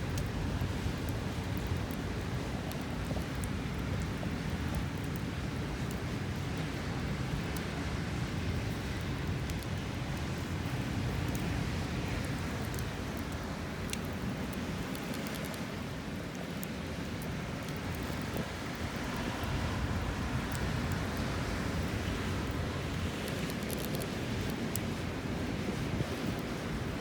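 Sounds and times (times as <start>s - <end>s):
campfire crackles: 0.0s - 27.0s
wind buffeting microphone: 17.4s - 27.0s.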